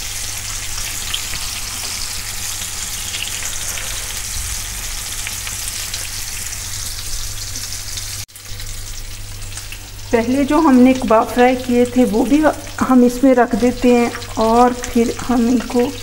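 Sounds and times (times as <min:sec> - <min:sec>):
kebabs sizzling in hot oil: 0:00.0 - 0:16.0.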